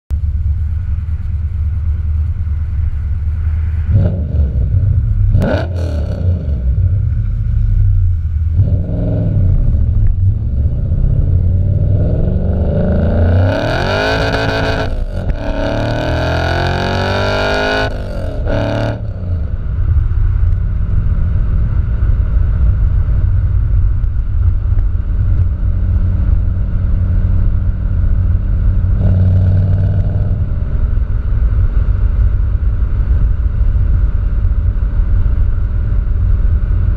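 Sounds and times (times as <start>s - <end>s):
low exhaust rumble: 0.1s - 36.9s
car engine revving and accelerating: 3.6s - 19.9s, 25.8s - 32.1s.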